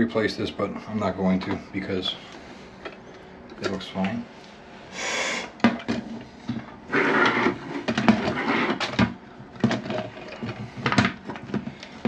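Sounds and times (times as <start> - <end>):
plastic parts rustling and clicking: 5.7 - 12.0.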